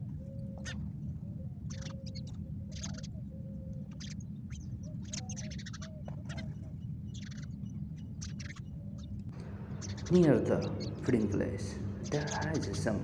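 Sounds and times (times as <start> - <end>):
birds chirping: 0.0 - 13.0
birds cooing: 0.0 - 13.0
low rumble: 9.3 - 13.0.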